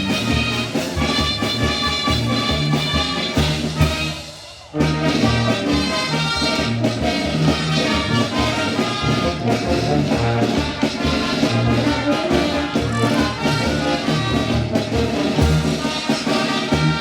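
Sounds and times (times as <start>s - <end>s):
brass band playing: 0.0s - 17.0s
low bass notes: 4.8s - 15.8s.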